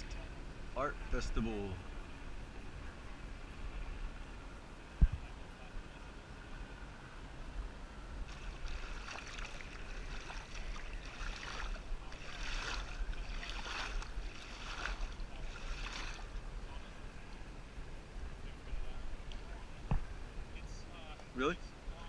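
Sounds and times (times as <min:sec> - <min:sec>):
wind rumble on microphone: 0:01.8 - 0:20.9
paddle splashing in water: 0:08.2 - 0:16.4.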